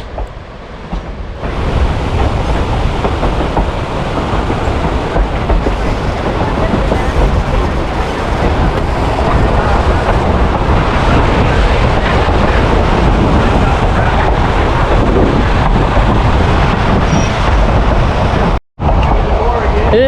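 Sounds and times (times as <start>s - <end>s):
train rumbling and rattling: 0.0s - 20.0s
wind buffeting microphone: 0.0s - 20.0s.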